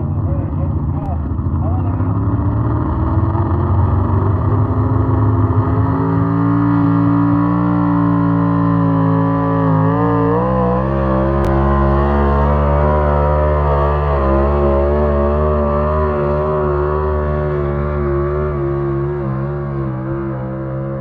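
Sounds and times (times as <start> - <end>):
truck engine running under load: 3.8 - 7.8.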